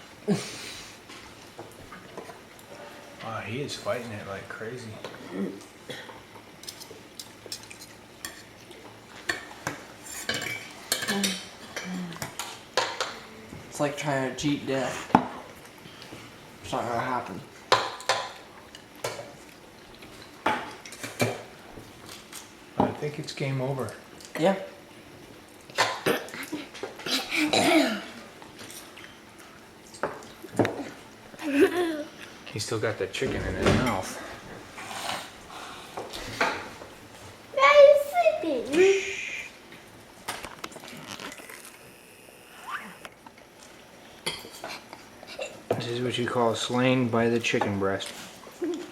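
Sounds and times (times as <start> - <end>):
person coughing: 26.0 - 28.2.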